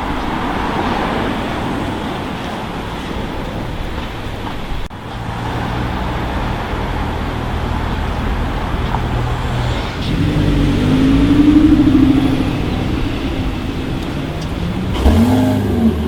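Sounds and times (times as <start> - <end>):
traffic road noise: 0.0 - 16.0
engine accelerating: 5.0 - 16.0.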